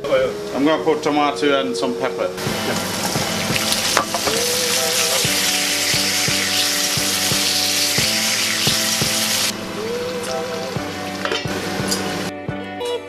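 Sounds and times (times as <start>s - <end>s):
vegetables sizzling in oil: 2.4s - 12.3s.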